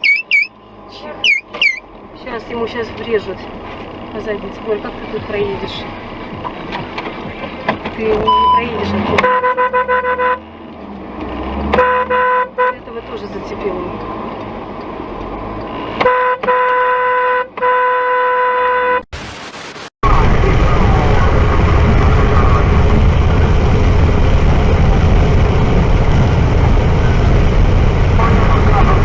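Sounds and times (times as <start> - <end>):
car horn blasts: 8.3 - 10.5, 11.6 - 12.9, 16.0 - 19.0
loud steady rushing noise: 19.2 - 29.0.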